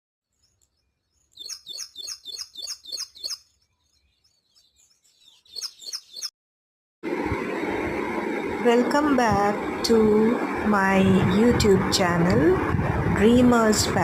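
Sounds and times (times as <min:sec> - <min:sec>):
bird chirping: 0:00.3 - 0:06.3.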